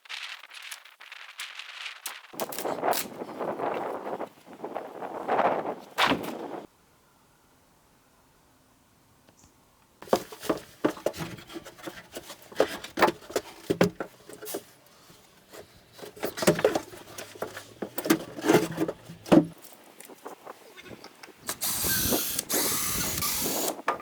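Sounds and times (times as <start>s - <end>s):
wood knocking and clattering: 10.0s - 14.5s, 16.0s - 19.6s.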